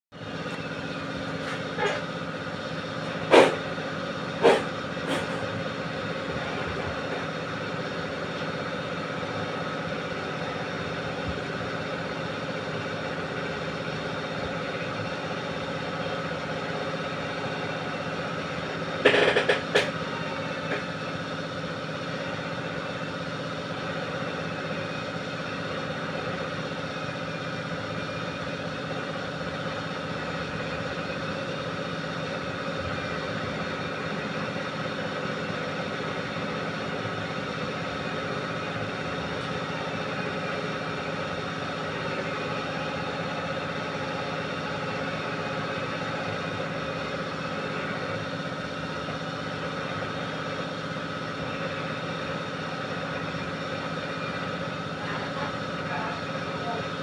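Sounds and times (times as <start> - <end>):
machine hum: 0.1 - 57.0
sharp knocks: 19.0 - 19.9.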